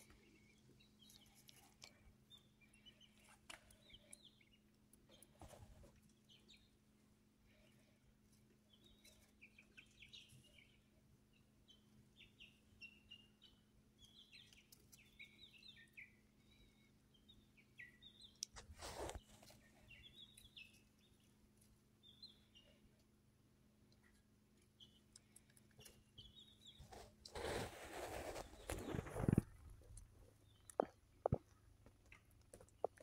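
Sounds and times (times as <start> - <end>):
faint steady hum: 0.0 - 33.0
brief rustling: 18.6 - 19.6, 26.8 - 29.7.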